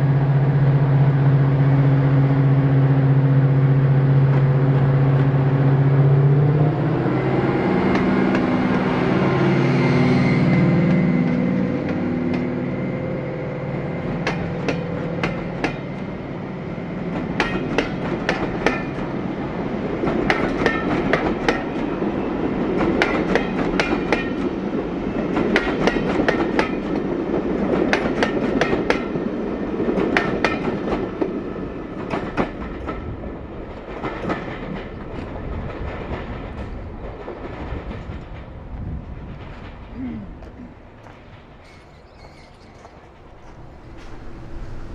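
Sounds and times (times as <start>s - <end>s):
train rolling rumble: 0.0s - 44.9s
wheels clicking over rail joints: 33.8s - 44.9s
diesel engine drone: 43.1s - 44.9s.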